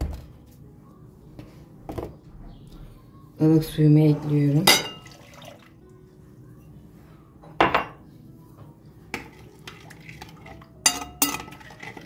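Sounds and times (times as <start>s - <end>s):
dishware clinking: 4.6s - 5.3s, 7.5s - 8.0s, 10.8s - 12.0s.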